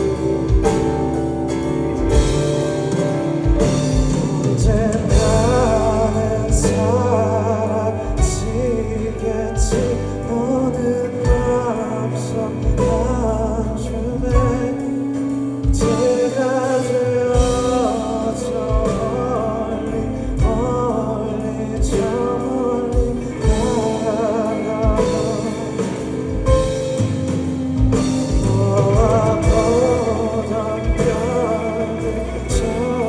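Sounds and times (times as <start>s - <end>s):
drum hits: 0.0s - 7.1s, 22.9s - 31.6s
live band playing slow ballad: 0.0s - 33.0s
man singing: 0.0s - 33.0s.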